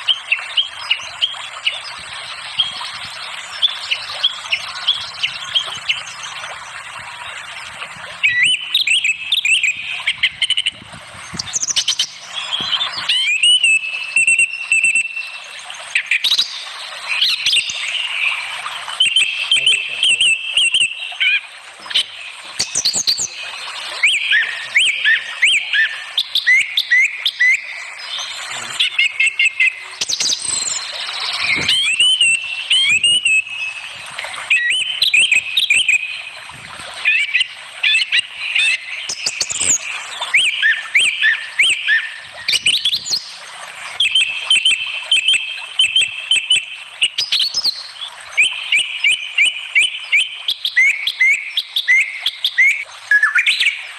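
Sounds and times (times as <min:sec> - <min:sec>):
birds chirping and singing: 0:00.0 - 0:36.4, 0:37.0 - 0:53.9.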